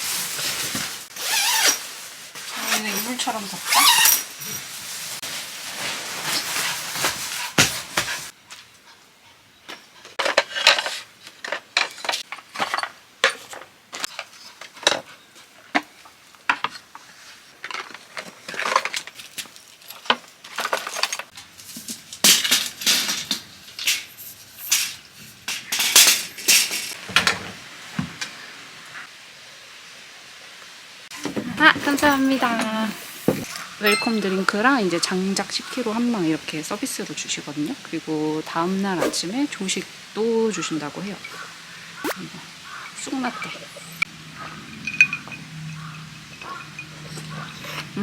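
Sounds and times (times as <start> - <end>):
rustling: 0.0 - 8.7
objects clinking and knocking: 0.4 - 4.8, 31.2 - 34.5, 44.7 - 47.5.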